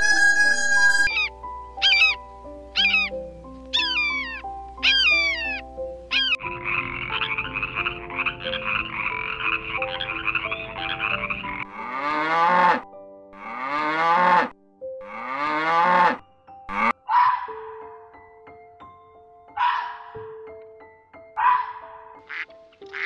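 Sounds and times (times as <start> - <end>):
falling animal cry: 0.0 - 2.2, 2.8 - 12.8
rising animal calls: 0.0 - 12.8
soft background music: 0.0 - 23.0
frog pulsing trill: 4.9 - 11.7.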